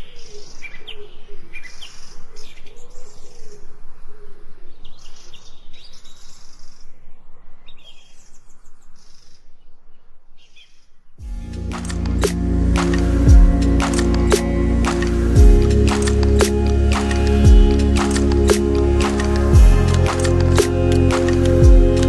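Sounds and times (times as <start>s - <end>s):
music: 11.2s - 22.0s
low wavering call: 11.3s - 22.0s.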